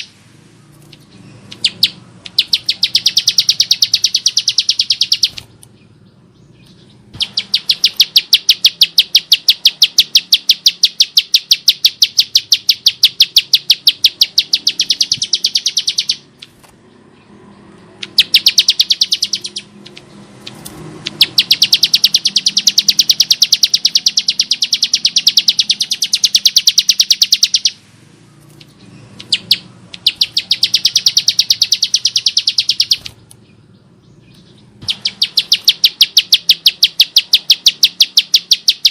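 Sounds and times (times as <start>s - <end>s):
bird singing rattling trills: 0.0s - 27.8s, 28.4s - 38.9s.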